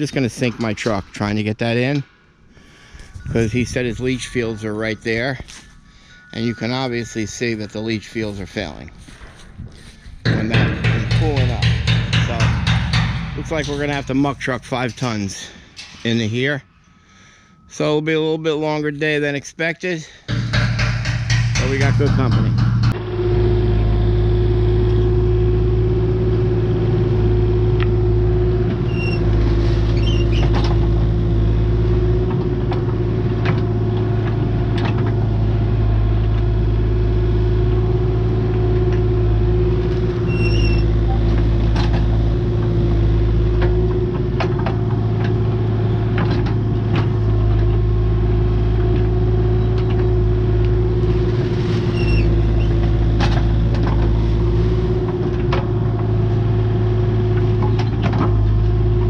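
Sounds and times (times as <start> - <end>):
excavator engine running: 0.0 - 16.5, 20.2 - 59.0
constant whine: 0.0 - 59.0
excavator bucket clanks: 10.2 - 16.2, 20.3 - 23.0, 40.2 - 42.8, 52.1 - 54.4.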